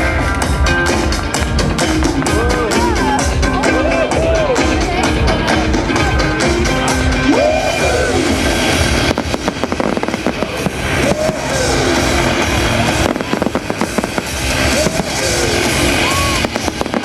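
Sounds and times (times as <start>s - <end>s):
loud music: 0.0s - 17.0s
fireworks crackling bangs: 8.6s - 17.0s.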